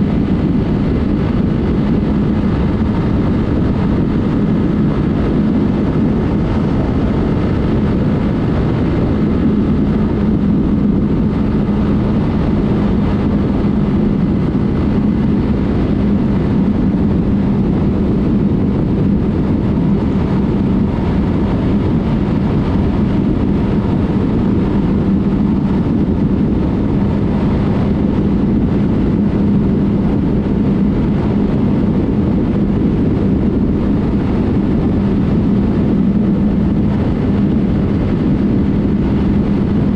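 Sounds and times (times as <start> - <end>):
motorcycle engine cruising: 0.0 - 39.9
road noise: 0.0 - 39.9
wind noise: 0.0 - 39.9.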